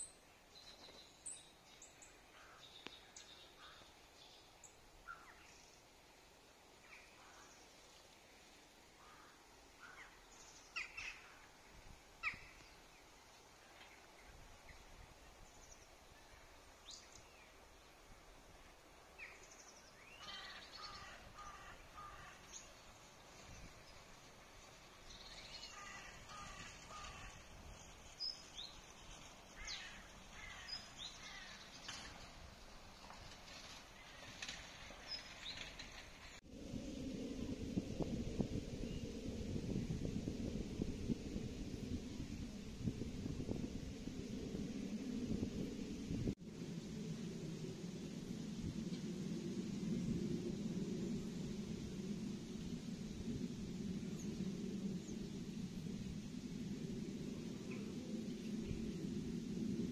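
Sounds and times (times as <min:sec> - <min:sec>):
wild birds chirping: 0:00.0 - 0:06.0, 0:06.7 - 0:32.3, 0:33.0 - 0:36.4
faint outdoor hiss: 0:00.0 - 0:59.9.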